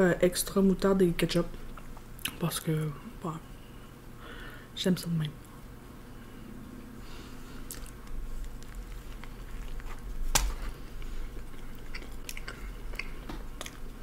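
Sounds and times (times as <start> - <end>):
close chewing with mouth clicks: 7.6 - 14.0.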